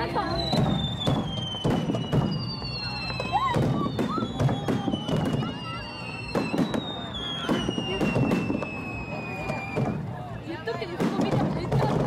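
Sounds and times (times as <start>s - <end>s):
falling firework whistles: 0.2s - 10.6s
firework shells bursting: 0.5s - 5.5s.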